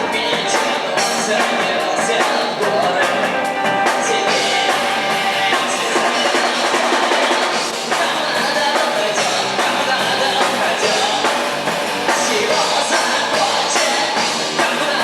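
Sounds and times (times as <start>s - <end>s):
drums: 0.0s - 15.0s
electric guitar: 0.0s - 15.0s
person singing: 0.0s - 15.0s.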